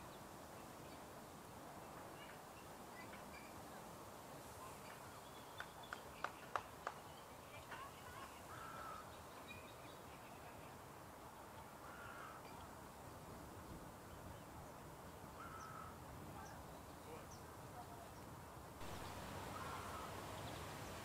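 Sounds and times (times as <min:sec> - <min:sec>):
bird calling: 0:15.4 - 0:16.6, 0:18.8 - 0:21.0.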